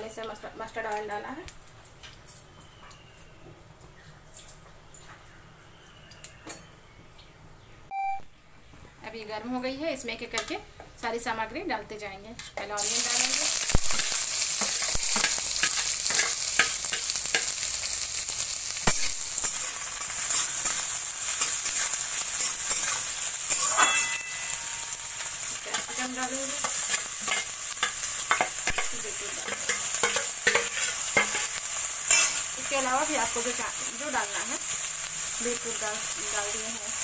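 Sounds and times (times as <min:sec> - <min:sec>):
onions sizzling in hot oil: 0:12.6 - 0:37.0
steel spatula scraping a pan: 0:14.6 - 0:17.6, 0:19.4 - 0:32.6.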